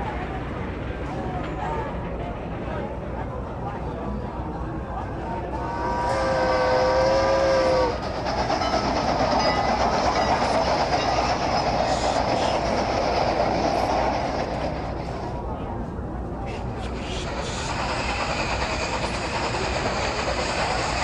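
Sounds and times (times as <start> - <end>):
train rumbling along rails: 0.0 - 21.0
train horn sounding: 5.6 - 8.0.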